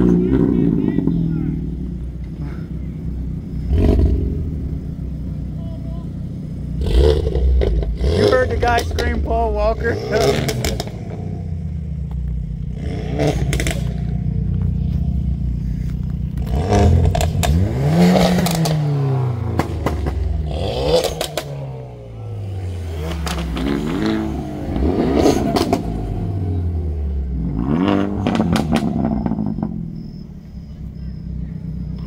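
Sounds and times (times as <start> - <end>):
car engines idling and revving: 0.0 - 32.0
sharp exhaust pops: 6.8 - 21.8, 23.0 - 26.2, 27.5 - 30.0.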